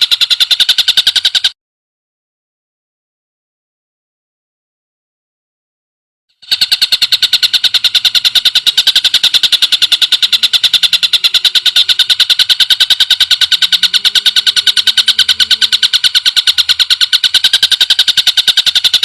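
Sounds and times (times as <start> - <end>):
bird's rapid high trill: 0.0 - 1.6, 6.4 - 19.0.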